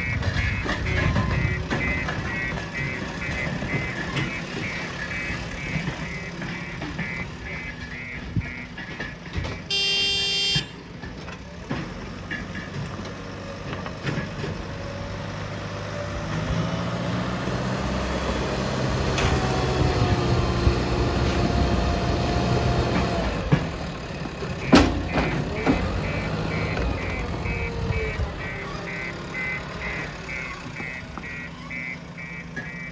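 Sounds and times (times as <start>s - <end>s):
reversing alarm beeping: 0.0s - 10.7s, 23.0s - 32.9s
diesel engine working under load: 0.0s - 32.9s
short horn toot: 9.7s - 10.7s.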